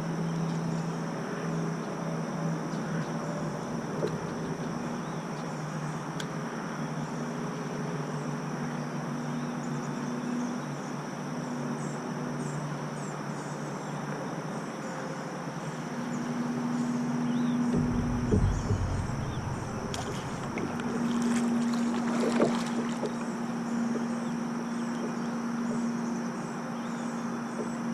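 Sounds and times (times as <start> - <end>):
low steady hum: 0.0 - 7.7, 16.6 - 24.5
insects droning: 0.0 - 27.9.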